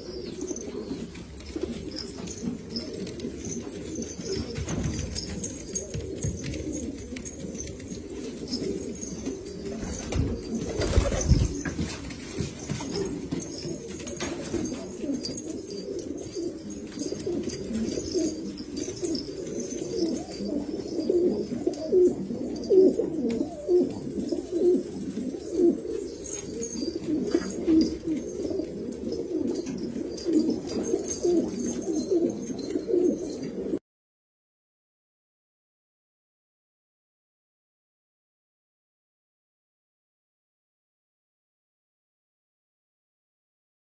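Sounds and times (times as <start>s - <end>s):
pigeons cooing: 0.0s - 33.8s.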